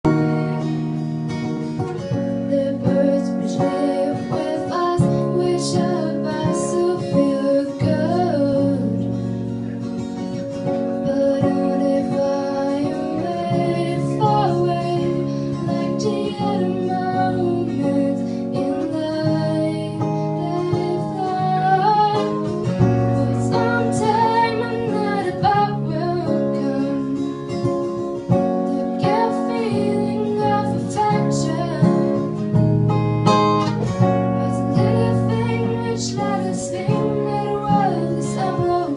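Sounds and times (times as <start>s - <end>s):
acoustic guitar: 0.0s - 38.9s
woman singing: 1.8s - 9.6s, 10.2s - 32.8s, 33.6s - 38.9s.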